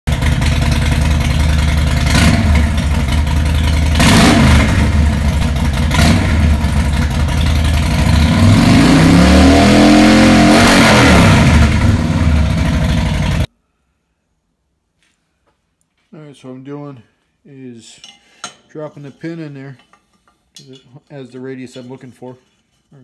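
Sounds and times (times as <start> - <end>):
engine revving: 0.1 - 13.5.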